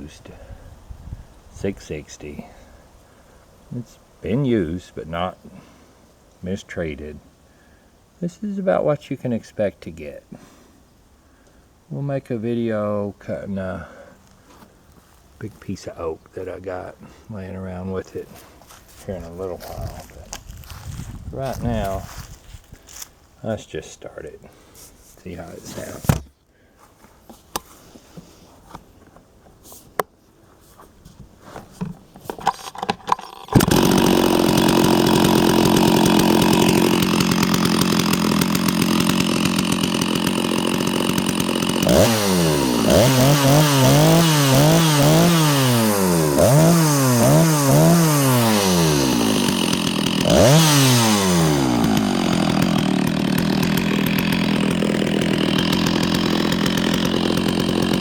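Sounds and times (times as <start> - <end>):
chainsaw revving and idling: 33.3 - 58.0.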